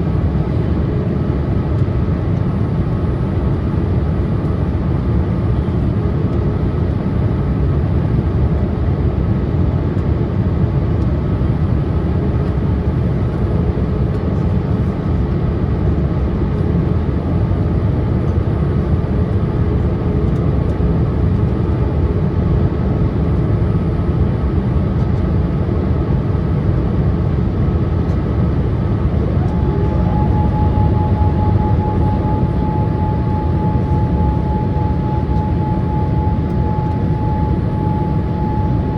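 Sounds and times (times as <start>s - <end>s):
airliner cabin noise: 0.0s - 38.9s
faint hydraulic whine: 29.2s - 38.9s.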